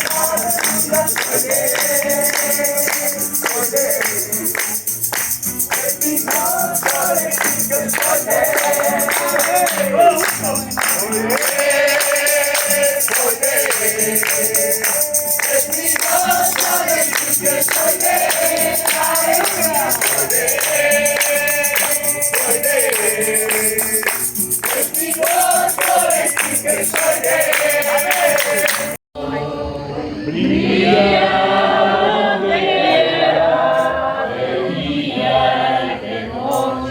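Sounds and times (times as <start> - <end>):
group singing a hymn: 0.0 - 4.9, 5.6 - 36.9
tambourine jingling: 0.0 - 29.0.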